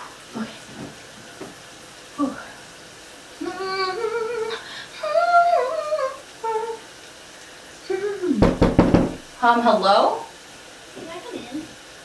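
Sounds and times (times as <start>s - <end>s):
person humming a tune: 3.4s - 6.8s.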